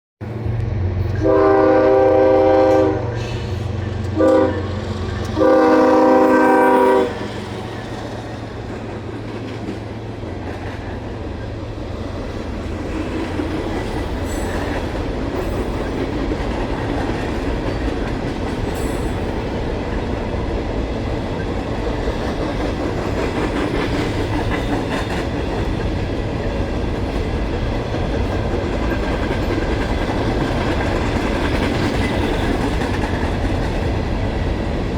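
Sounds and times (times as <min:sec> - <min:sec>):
diesel locomotive rumble: 0:00.2 - 0:34.9
locomotive air horn blasts: 0:01.0 - 0:04.7, 0:05.3 - 0:07.5
wheels clattering on rails: 0:07.3 - 0:34.9.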